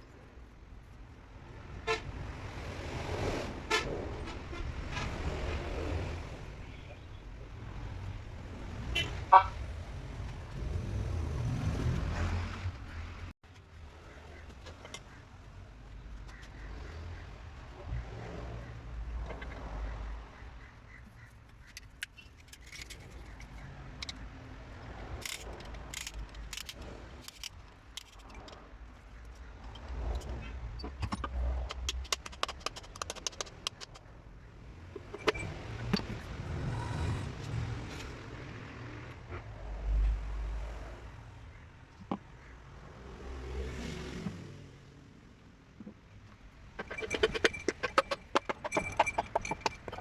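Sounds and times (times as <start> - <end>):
metallic clicks and taps: 29.2 - 34.1.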